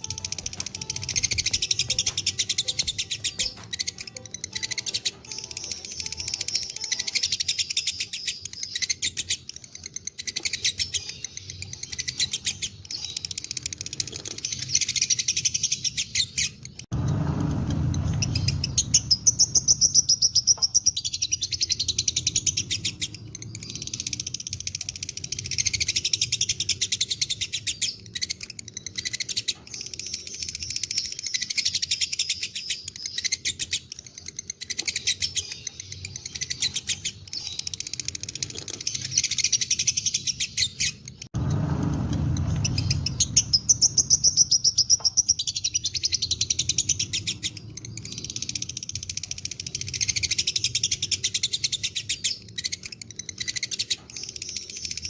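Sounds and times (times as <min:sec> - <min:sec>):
lovebirds chattering: 0:00.0 - 0:16.8, 0:17.6 - 0:55.0
low rumble: 0:16.9 - 0:20.2, 0:41.4 - 0:44.9.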